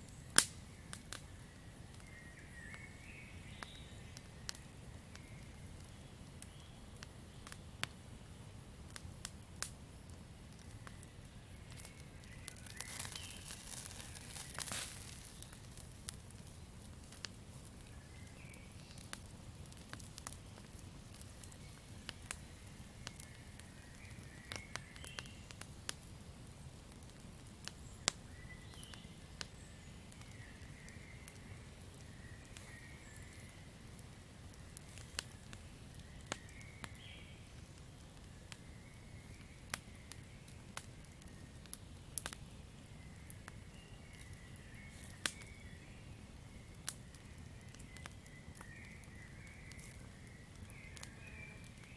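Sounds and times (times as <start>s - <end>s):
campfire crackling: 0.0s - 51.9s
fire hissing flare-up: 7.4s - 28.2s, 29.2s - 36.4s.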